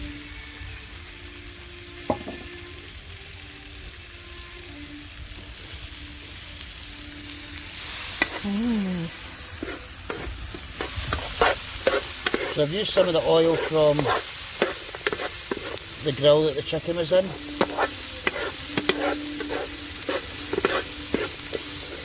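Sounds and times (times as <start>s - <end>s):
food sizzling in oil: 0.0s - 22.0s
utensil knocking against pan: 2.1s - 2.5s, 10.8s - 15.7s, 17.6s - 19.5s.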